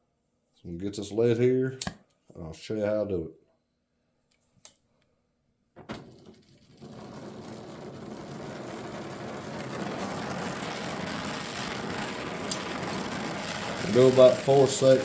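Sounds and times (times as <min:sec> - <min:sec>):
gas torch ignition pop: 0:05.8 - 0:15.0
torch flame hissing: 0:05.9 - 0:15.0.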